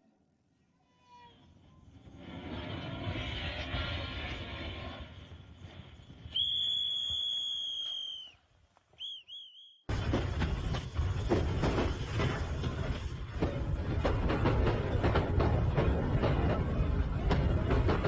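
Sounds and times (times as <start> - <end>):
loud rushing noise with deep rumble: 2.0 - 6.3
shrill whistle: 6.1 - 9.9
short whistle chirps: 6.3 - 8.4, 9.0 - 9.9.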